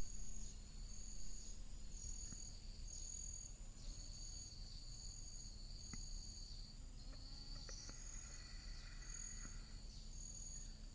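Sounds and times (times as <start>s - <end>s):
insects trilling: 0.0s - 10.9s
faint ticks: 2.1s - 2.6s, 5.8s - 6.2s, 7.0s - 10.0s.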